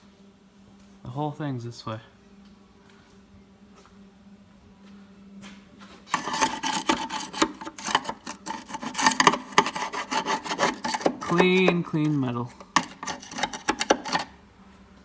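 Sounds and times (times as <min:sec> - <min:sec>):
scraping dirt off metal: 0:06.1 - 0:14.3.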